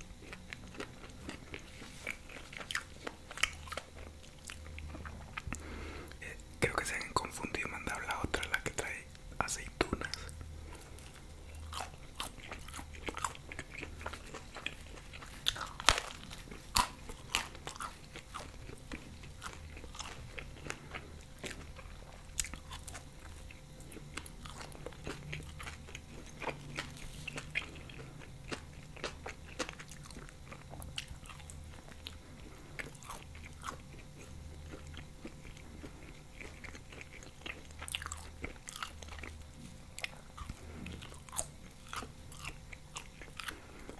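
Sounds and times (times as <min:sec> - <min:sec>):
biting crunching and chewing: 0:00.0 - 0:06.2, 0:09.8 - 0:43.9.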